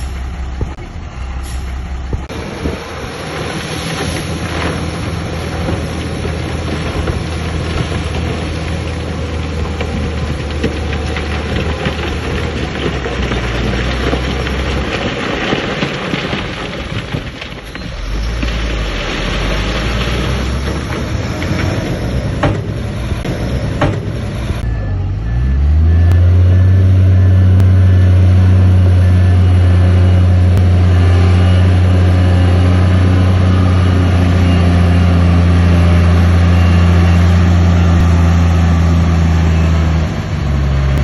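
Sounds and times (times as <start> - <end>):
engine knocks: 0.0 - 1.0, 2.0 - 2.9, 19.4 - 24.7
heavy diesel engine rumbling: 0.0 - 41.0.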